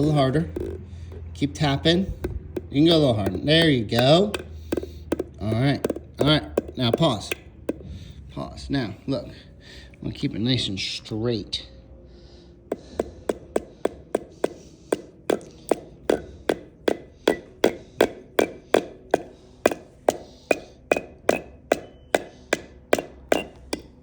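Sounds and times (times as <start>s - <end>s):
hammer hitting nail into wood: 2.0s - 8.0s, 12.7s - 24.0s.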